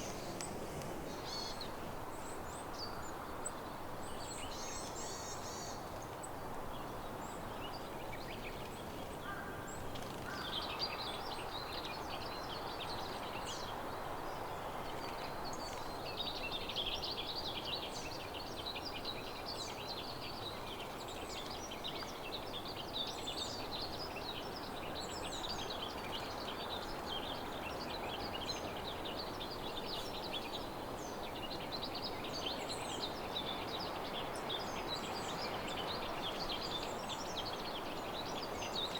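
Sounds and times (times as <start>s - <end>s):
steady background hiss: 0.0s - 5.7s.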